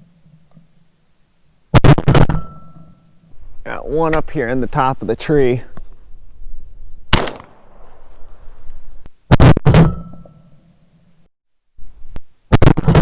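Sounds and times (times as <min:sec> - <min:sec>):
metallic ring: 0:02.3 - 0:03.3, 0:09.8 - 0:10.8.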